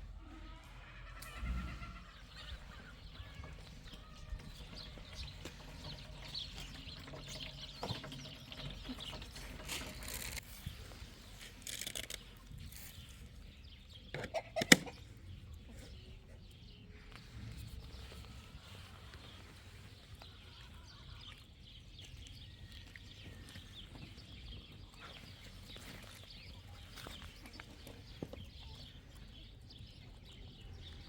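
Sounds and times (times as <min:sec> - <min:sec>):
farmyard fowl calling: 0:00.1 - 0:05.6, 0:14.2 - 0:15.1.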